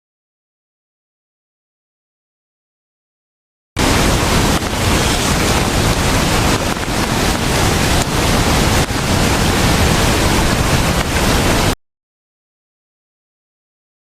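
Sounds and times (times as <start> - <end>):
strong wind buffeting microphone: 3.8 - 11.8.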